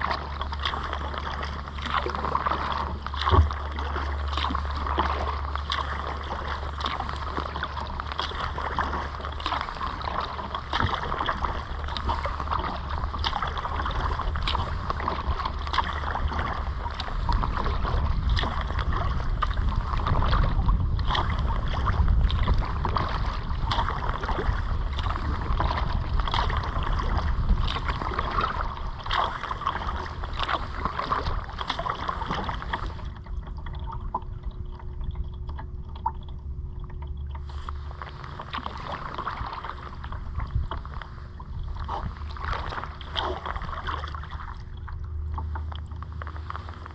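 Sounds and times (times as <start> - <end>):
kayak paddle splashing in water: 0.0 - 36.3, 37.0 - 46.9
wind rumble on microphone: 0.0 - 46.9.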